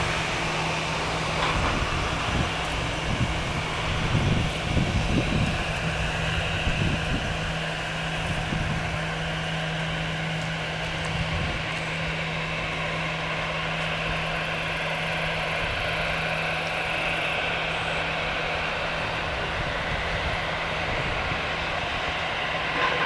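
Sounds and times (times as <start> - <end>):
jet engines humming: 0.0 - 23.0.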